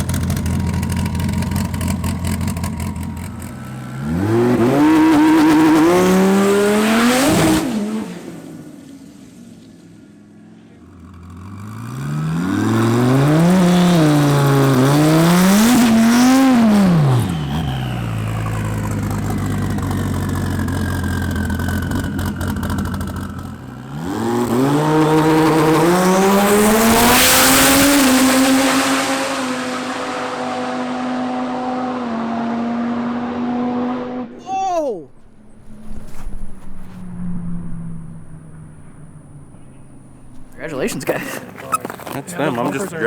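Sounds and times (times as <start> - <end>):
car engine revving hard: 0.0 - 8.6, 11.0 - 34.4.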